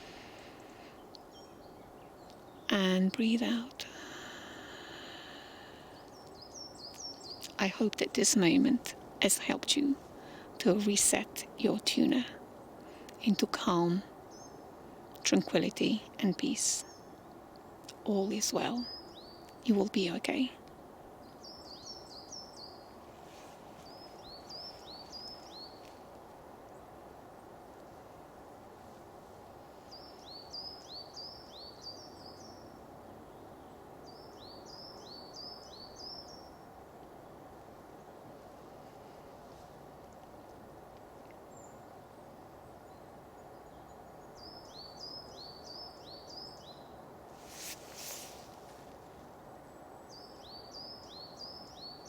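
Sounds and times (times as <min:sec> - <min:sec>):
songbird chirping: 0:00.0 - 0:27.0, 0:27.8 - 0:52.0
outdoor ambient hiss: 0:00.0 - 0:52.0.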